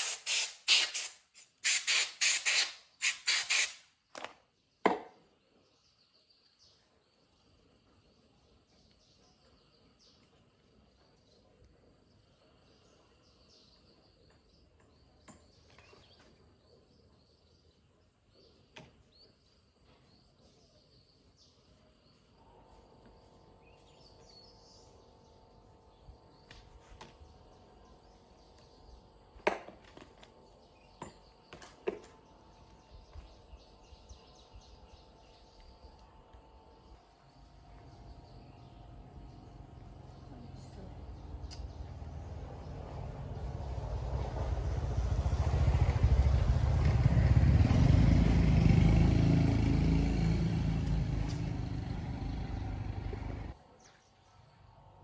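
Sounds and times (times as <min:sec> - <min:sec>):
birds: 0:04.3 - 0:42.0, 0:45.4 - 0:55.0
insects: 0:05.4 - 0:43.5.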